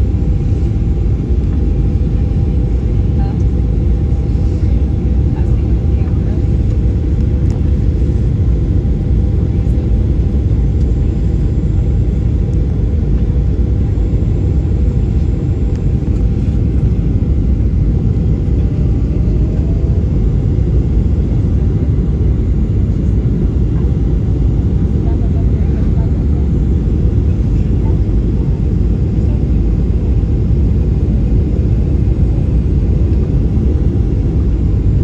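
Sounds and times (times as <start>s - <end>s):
airflow noise: 0.0s - 9.7s
airliner cabin engine rumble: 0.0s - 35.0s.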